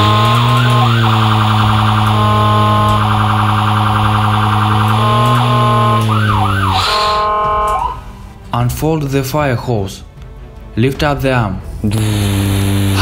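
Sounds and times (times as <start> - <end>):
toy electronic siren wailing: 0.0 - 8.0.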